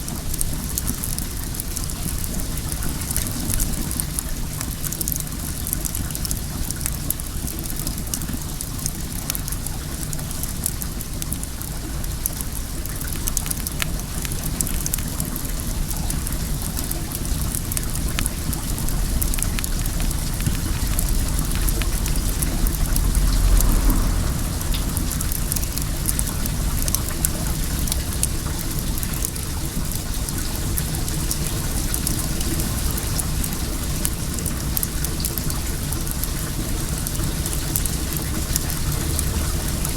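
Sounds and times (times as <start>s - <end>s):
bonfire crackling and popping: 0.1s - 39.9s
running water rushing: 11.4s - 39.9s
low rumble: 19.1s - 28.2s.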